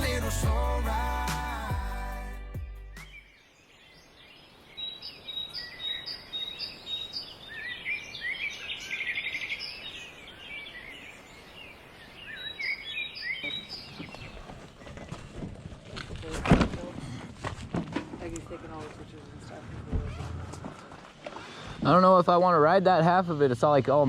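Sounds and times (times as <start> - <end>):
songbirds chirping and trilling: 2.7 - 15.5.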